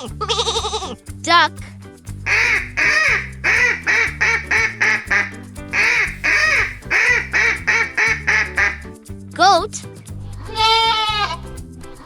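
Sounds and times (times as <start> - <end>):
children's music with bass: 0.0 - 12.0
duck quacking: 2.3 - 8.8.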